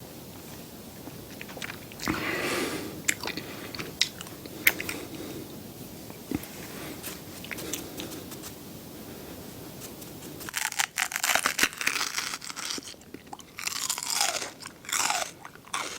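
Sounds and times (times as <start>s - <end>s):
soft chewing: 0.0s - 15.9s
crisp crunching bites: 10.4s - 15.9s.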